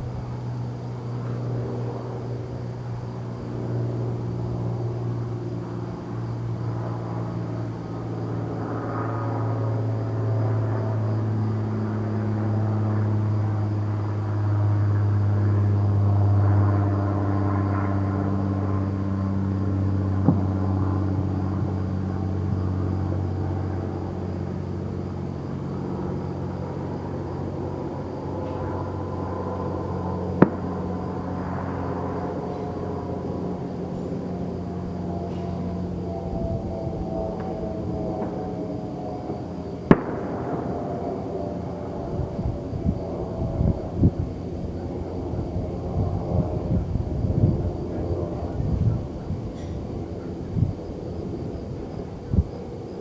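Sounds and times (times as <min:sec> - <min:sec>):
sharp pop: 0:40.0 - 0:40.3.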